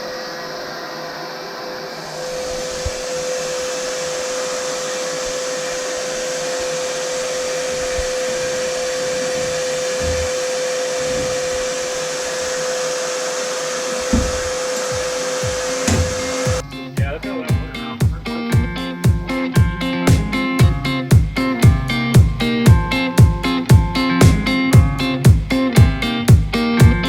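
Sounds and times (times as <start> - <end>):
compressed air blasting hiss: 1.8 - 16.6
constant tone: 4.9 - 18.3
low thumps: 7.4 - 12.8, 13.8 - 17.2.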